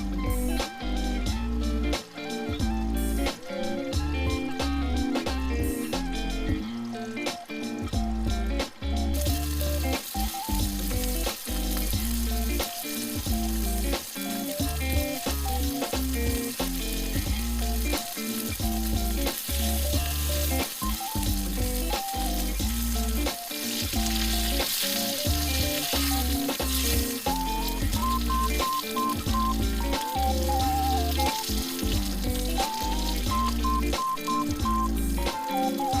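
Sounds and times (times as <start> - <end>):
background music with pulsing bass: 0.0 - 6.9, 7.7 - 12.6, 18.6 - 23.3, 25.2 - 36.0
food sizzling in a pan: 0.0 - 36.0.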